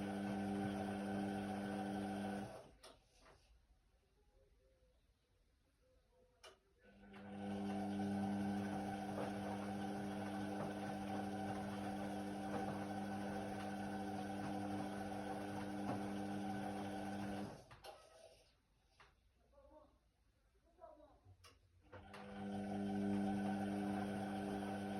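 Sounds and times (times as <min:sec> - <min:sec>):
washer-dryer motor hum: 0:00.0 - 0:02.8, 0:06.9 - 0:17.8, 0:21.9 - 0:24.9.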